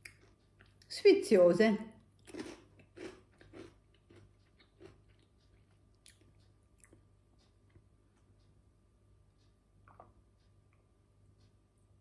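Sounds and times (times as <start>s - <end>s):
chewing crunchy potato chips: 0.0s - 0.9s, 2.0s - 8.3s.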